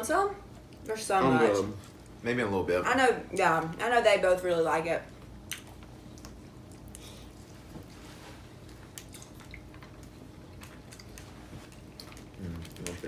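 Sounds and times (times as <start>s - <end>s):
low room hum: 0.0s - 13.0s
chewing sounds: 5.1s - 13.0s.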